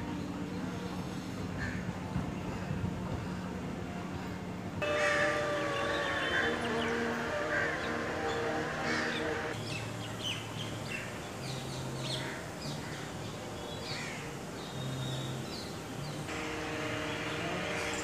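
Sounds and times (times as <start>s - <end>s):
birds chirping: 4.8s - 18.0s.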